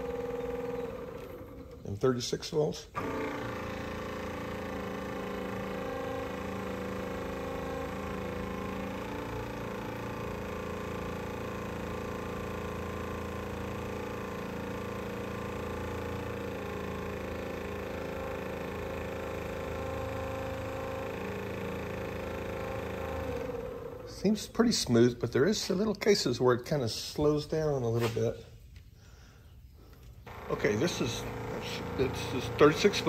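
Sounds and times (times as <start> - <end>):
electric motor whining: 0.0 - 2.1, 2.7 - 24.4, 29.9 - 33.0.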